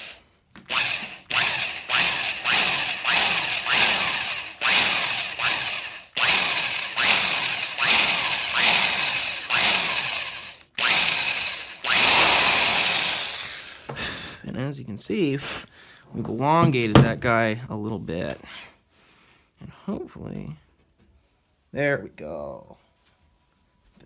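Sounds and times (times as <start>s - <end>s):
electric drill whirring in pulses: 0.0s - 14.1s.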